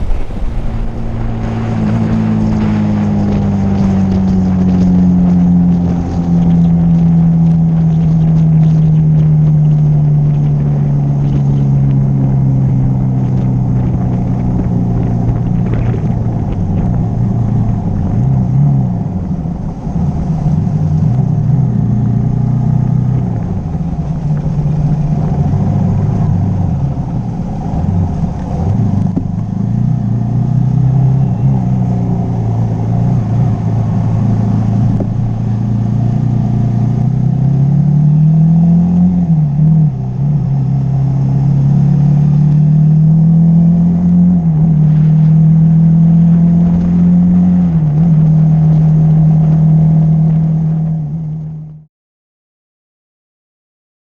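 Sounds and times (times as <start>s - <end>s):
motorcycle engine running: 20.7s - 38.5s.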